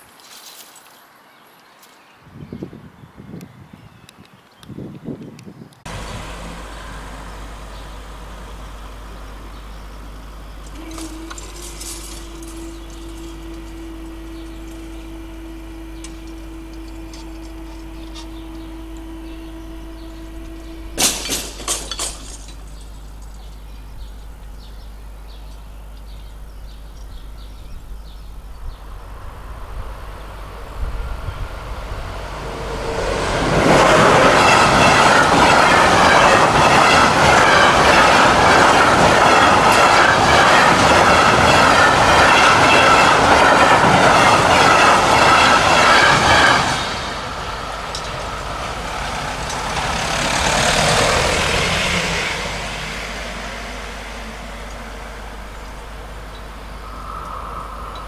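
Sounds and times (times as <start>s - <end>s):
freight train passing: 5.8s - 58.0s
wheels clattering over rail joints: 5.9s - 24.0s, 31.2s - 56.6s
level crossing warning tone: 5.9s - 24.2s, 29.1s - 58.0s.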